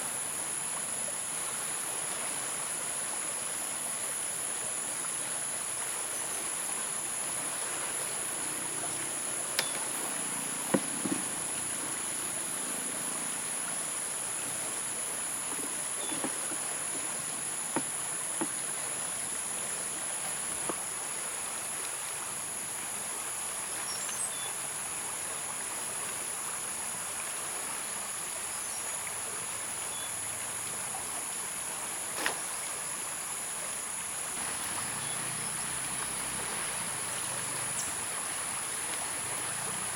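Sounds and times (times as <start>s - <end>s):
stream running: 0.0s - 39.9s
high-pitched insect chorus: 32.4s - 39.9s.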